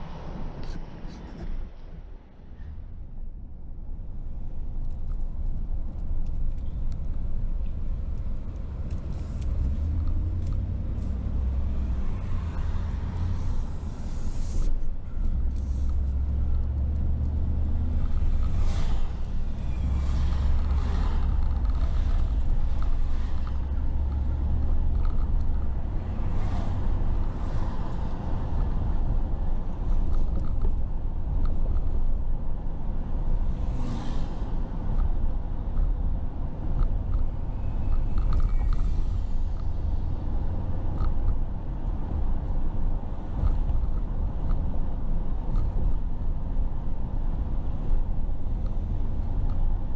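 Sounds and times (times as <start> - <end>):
car engine and road noise: 0.0 - 49.9
passing traffic swooshes: 10.7 - 30.3, 33.4 - 35.4.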